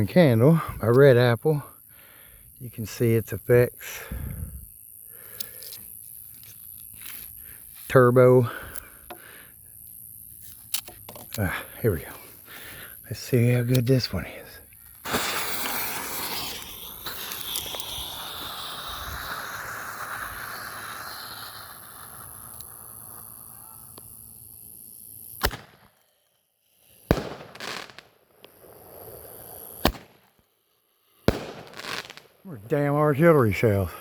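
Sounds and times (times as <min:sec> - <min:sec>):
roman candle hissing: 0:11.4 - 0:25.4
firework bangs: 0:15.0 - 0:24.0, 0:27.0 - 0:30.3, 0:31.2 - 0:32.4.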